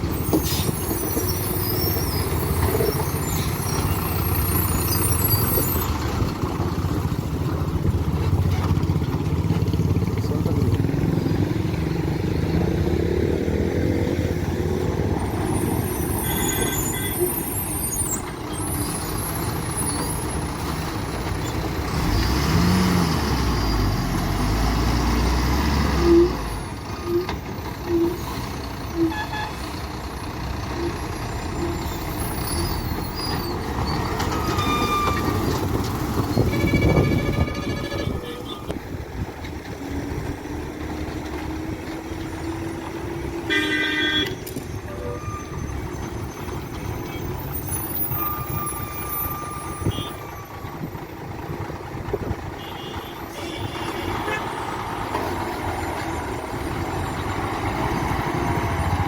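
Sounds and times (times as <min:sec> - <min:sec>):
brake squeals: 0:00.0 - 0:12.9, 0:13.8 - 0:59.0
diesel truck engines droning: 0:00.0 - 0:59.0
air brake hisses: 0:00.4 - 0:01.0.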